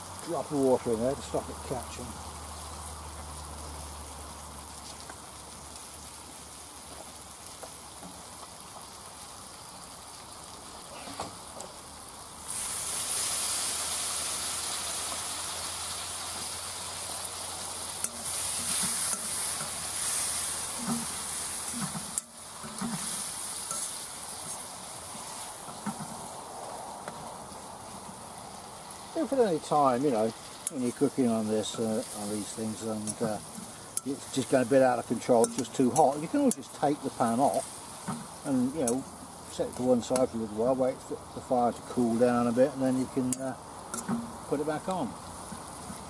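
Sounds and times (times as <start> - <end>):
curry sizzling in a wok: 0.0 - 46.0
metal spoon scraping a pan: 18.0 - 26.1, 31.6 - 39.1, 43.2 - 44.4.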